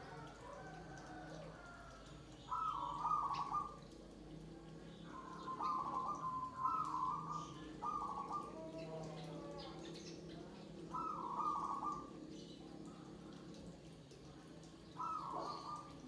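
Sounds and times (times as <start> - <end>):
doves cooing: 0.0 - 4.2, 5.0 - 10.0, 10.8 - 12.3, 14.8 - 16.0.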